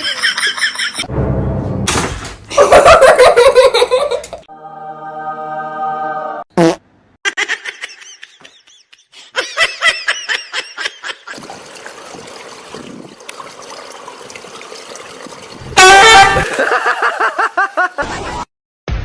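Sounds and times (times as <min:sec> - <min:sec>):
high-pitched laughing: 0:00.0 - 0:01.1, 0:07.2 - 0:11.4.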